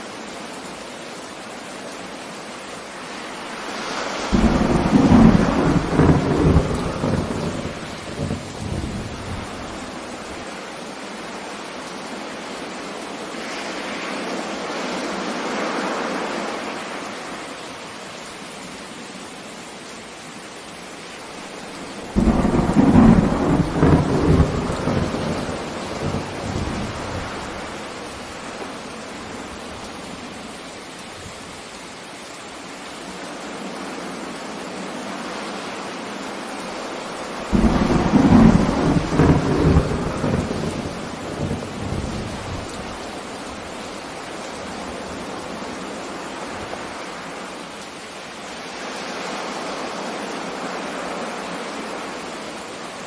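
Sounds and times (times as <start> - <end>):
heavy rain: 0.0 - 53.0
thunder clap and rumble: 4.3 - 9.8, 22.1 - 27.8, 37.5 - 42.8.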